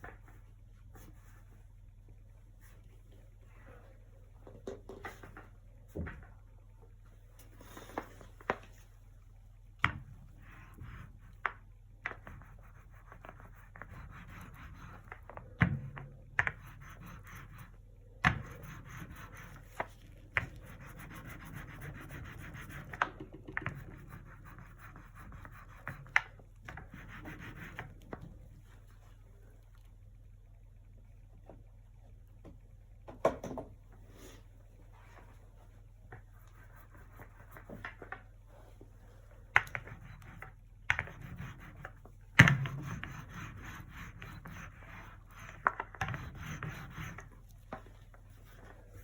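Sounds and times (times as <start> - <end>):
sharp taps and knocks: 22.6 - 24.0.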